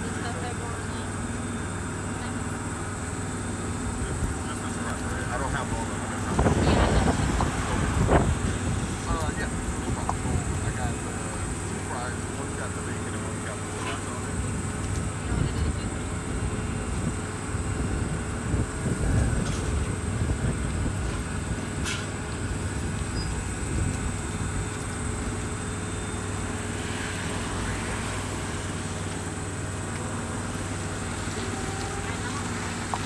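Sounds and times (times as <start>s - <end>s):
low mechanical hum: 0.0s - 33.0s
wind gusting over microphone: 3.8s - 12.3s, 14.3s - 25.7s.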